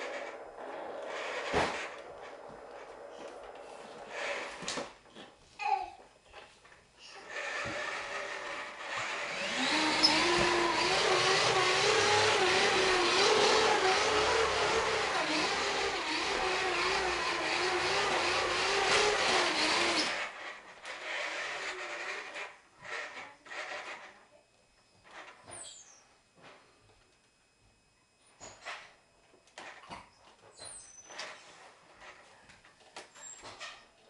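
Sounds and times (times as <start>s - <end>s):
toy electric motor whining: 0.0s - 4.9s, 7.0s - 24.3s.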